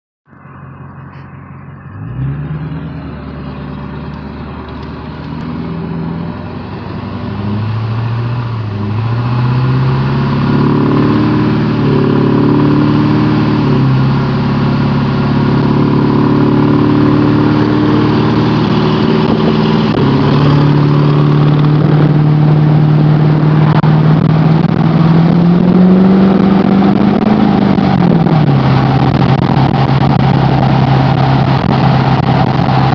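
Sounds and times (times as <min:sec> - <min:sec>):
diesel engine running under load: 0:00.3 - 0:32.9
wind noise on microphone: 0:15.5 - 0:32.9.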